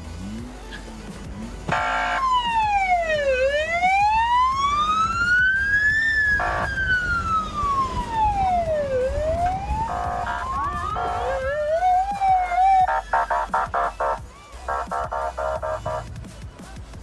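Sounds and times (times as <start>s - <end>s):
steady siren tone bursts: 1.7s - 16.0s
emergency vehicle siren wailing: 1.7s - 16.1s.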